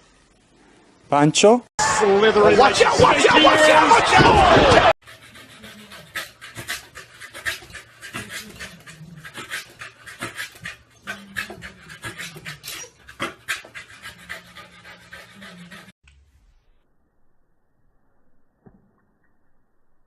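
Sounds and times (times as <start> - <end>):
dog panting quickly: 5.0 - 16.0.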